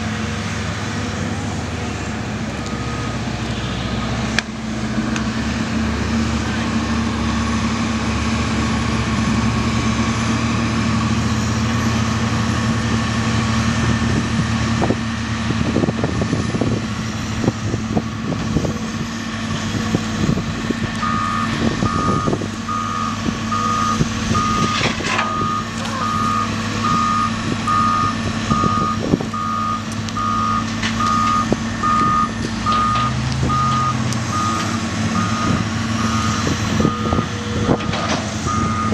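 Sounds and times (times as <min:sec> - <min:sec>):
diesel engine running: 0:00.0 - 0:38.9
reversing alarm beeping: 0:21.0 - 0:38.9.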